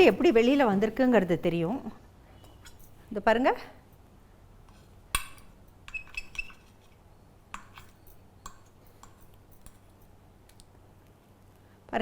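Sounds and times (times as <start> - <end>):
utensil clinking against dish: 7.5 - 10.0.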